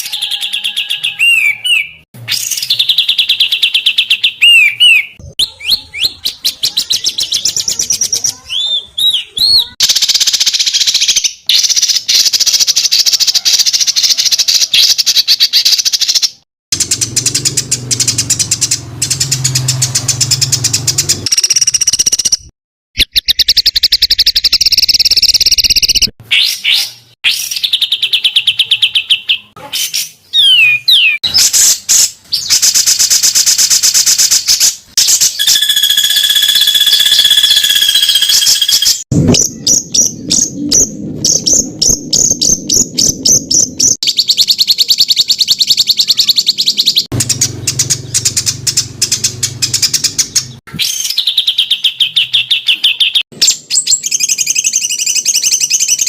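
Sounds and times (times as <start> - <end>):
harsh rattling bird trills: 16.8 - 22.4, 32.5 - 40.4, 43.8 - 51.6
steady whistled bird note: 35.0 - 44.0.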